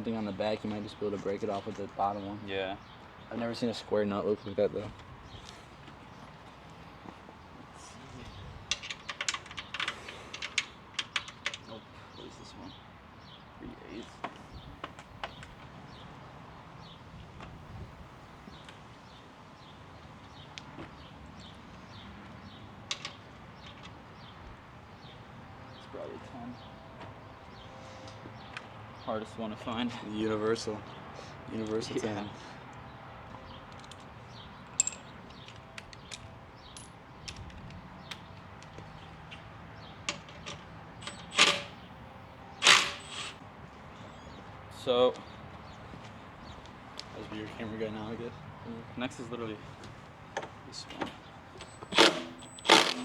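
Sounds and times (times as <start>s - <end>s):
metallic clicks and clinks: 34.8s - 35.1s
ratchet rasping: 41.0s - 41.8s, 42.6s - 43.4s, 51.9s - 53.0s.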